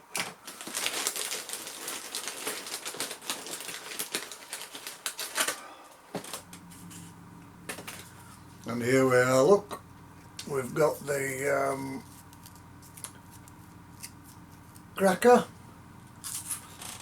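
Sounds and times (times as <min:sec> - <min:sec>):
packaging crinkling: 0:00.2 - 0:07.0, 0:16.2 - 0:17.0.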